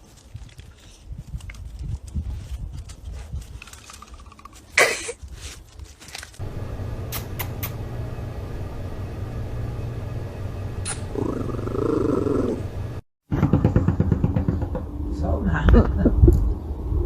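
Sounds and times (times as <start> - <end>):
cat purring: 11.1 - 12.7.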